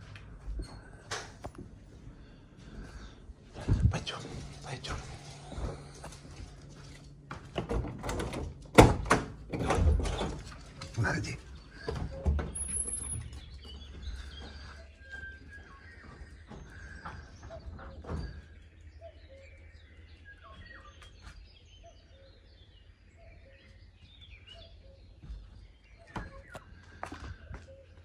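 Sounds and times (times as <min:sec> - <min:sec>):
small birds chirping: 0:00.0 - 0:07.4, 0:09.9 - 0:28.0.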